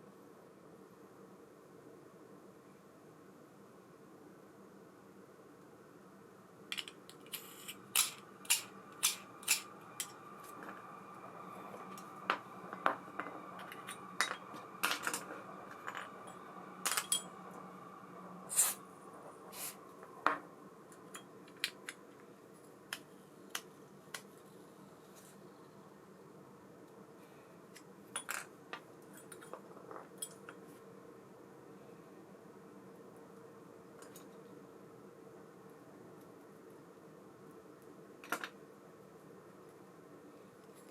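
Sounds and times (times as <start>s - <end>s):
faint high hum: 0.0s - 40.9s.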